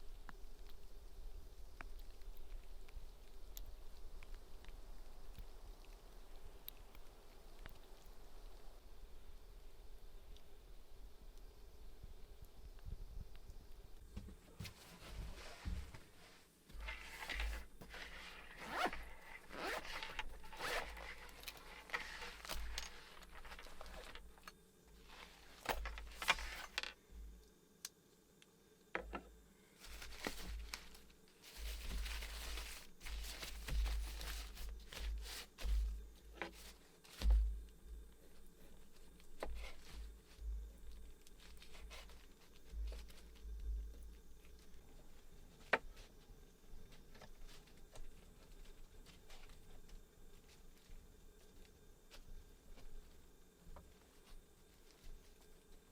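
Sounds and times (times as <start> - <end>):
rustling: 14.1 - 27.0, 29.6 - 46.2
scraping and zipping strokes: 17.2 - 22.4.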